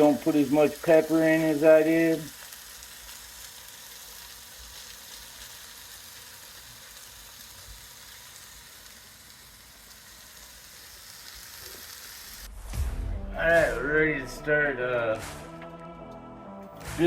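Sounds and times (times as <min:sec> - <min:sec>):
chicken sizzling in a pan: 0:00.0 - 0:12.5.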